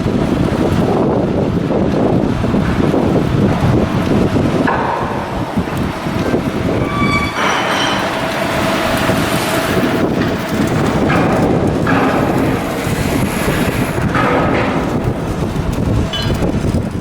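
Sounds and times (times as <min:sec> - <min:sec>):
loud machinery noise: 0:00.0 - 0:17.0
high metallic squeal: 0:05.7 - 0:10.8.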